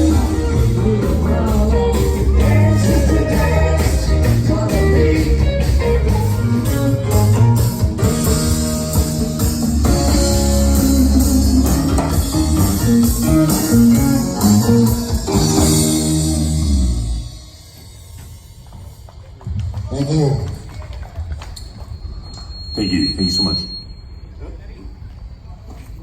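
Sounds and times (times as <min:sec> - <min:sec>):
live rock band playing: 0:00.0 - 0:18.5.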